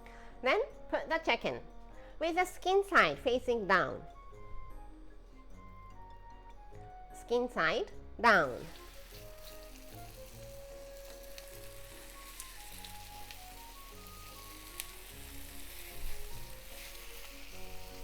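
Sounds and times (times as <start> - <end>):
chicken frying in hot oil: 8.6 - 18.0.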